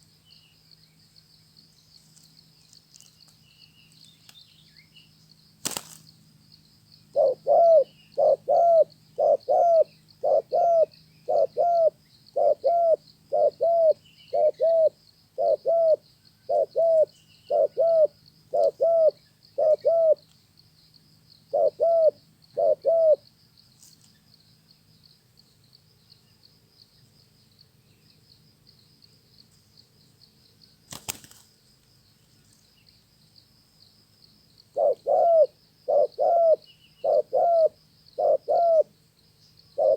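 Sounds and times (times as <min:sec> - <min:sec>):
faint high insect buzz: 0:00.0 - 0:39.9
dove cooing: 0:07.1 - 0:20.2, 0:21.5 - 0:23.2, 0:34.7 - 0:38.9.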